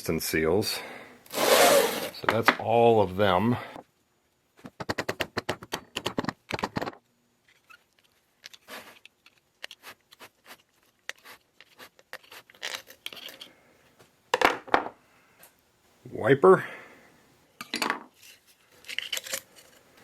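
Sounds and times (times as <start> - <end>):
small metal parts clicking and rattling: 10.8 - 13.5, 18.7 - 19.8.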